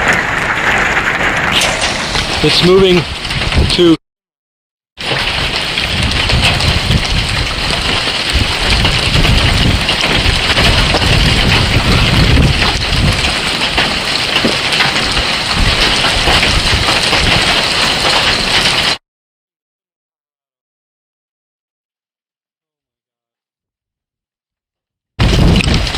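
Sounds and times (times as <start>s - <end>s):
hail and rain pelting down: 0.0s - 4.0s, 5.0s - 19.0s, 25.2s - 25.9s
wind buffeting microphone: 1.5s - 4.0s, 5.0s - 18.6s, 25.2s - 25.9s.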